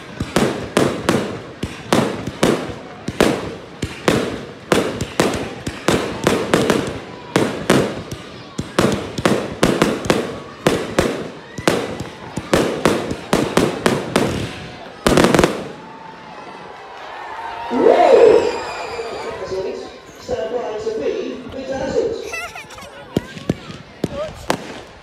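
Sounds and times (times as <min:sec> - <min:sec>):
firework bangs: 0:00.0 - 0:16.1, 0:23.2 - 0:25.0.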